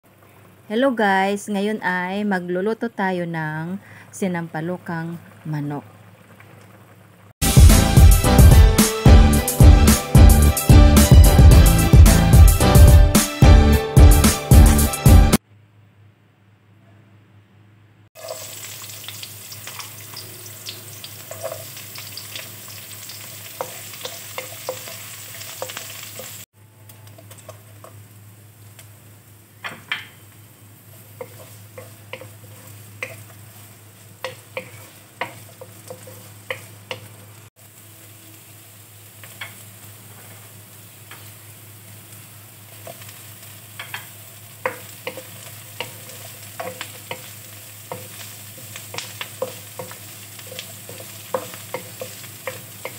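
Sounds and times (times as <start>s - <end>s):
food sizzling in hot oil: 5.2s - 15.4s, 18.2s - 26.5s, 27.1s - 52.9s.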